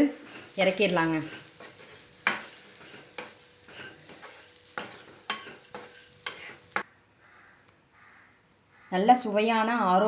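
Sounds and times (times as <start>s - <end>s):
spatula scraping a frying pan: 0.0s - 6.8s
light sizzle: 0.0s - 6.9s.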